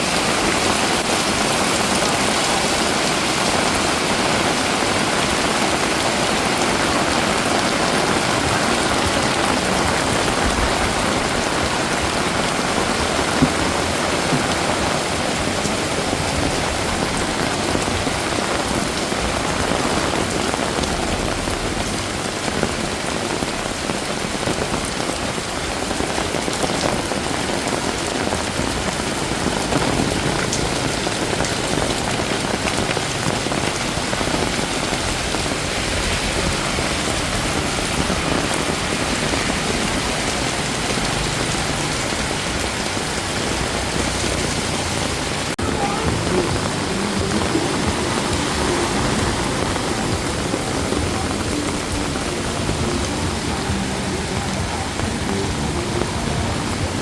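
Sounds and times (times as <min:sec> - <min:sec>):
heavy rain on hard surfaces: 0:00.0 - 0:57.0.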